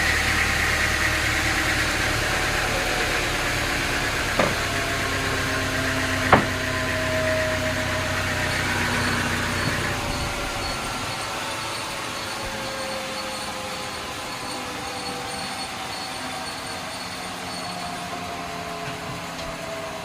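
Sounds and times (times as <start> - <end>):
engine idling: 0.0 - 14.9
sharp knocks: 4.3 - 7.1.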